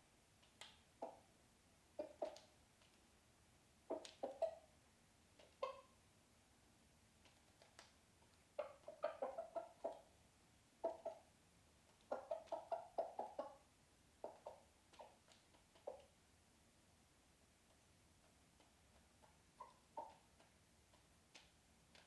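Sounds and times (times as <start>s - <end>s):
chicken clucking: 0.6s - 1.3s, 1.9s - 3.0s, 3.8s - 4.7s, 5.3s - 6.0s, 7.2s - 10.2s, 10.8s - 16.2s, 17.6s - 22.0s.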